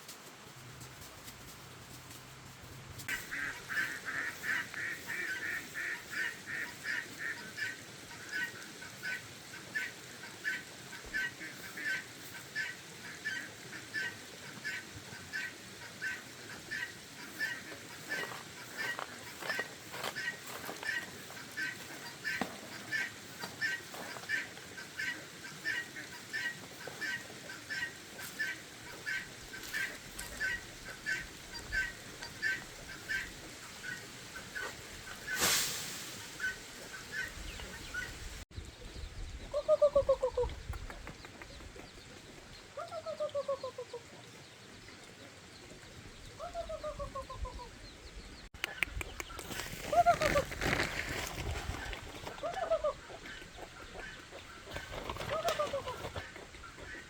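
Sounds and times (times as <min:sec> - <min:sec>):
poultry calling: 0:03.1 - 0:35.5, 0:48.6 - 0:57.0
brief rush of noise: 0:35.3 - 0:36.3.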